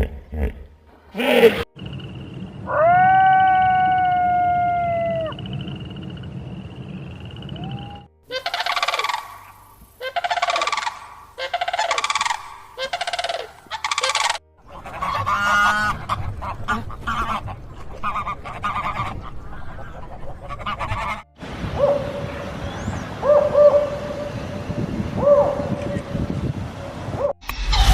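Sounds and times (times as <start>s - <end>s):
swooping calls: 1.3s - 17.4s
goose honking: 8.3s - 9.4s, 10.0s - 21.3s
rapid rattling call: 8.4s - 9.4s, 10.1s - 16.2s.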